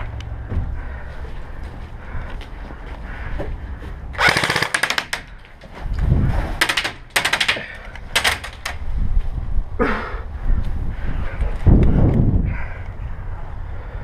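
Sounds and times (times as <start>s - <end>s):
airsoft guns firing bursts: 4.2s - 5.2s, 6.6s - 8.6s.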